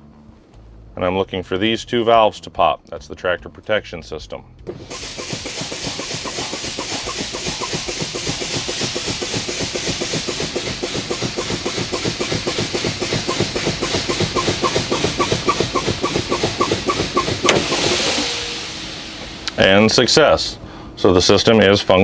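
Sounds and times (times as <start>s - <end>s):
valve popping out: 4.7s - 21.0s
truck low-air warning pulsing: 4.7s - 21.7s
air hissing: 4.7s - 21.8s.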